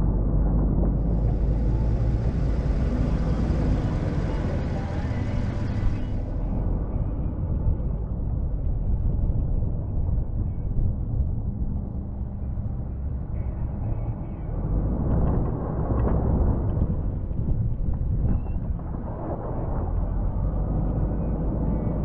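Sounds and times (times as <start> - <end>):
truck engine running: 0.0 - 18.2.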